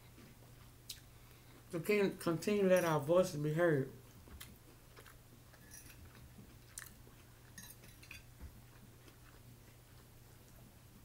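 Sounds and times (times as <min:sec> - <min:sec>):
low steady hum: 0:00.0 - 0:11.0
close-up chewing: 0:04.0 - 0:11.0.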